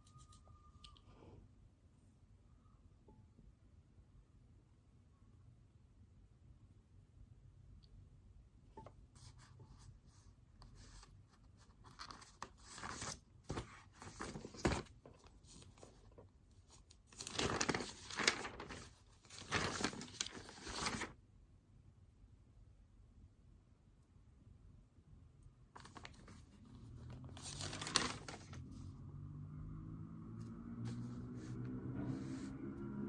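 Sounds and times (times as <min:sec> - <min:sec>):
paper tearing: 0:17.1 - 0:21.1, 0:27.2 - 0:28.6.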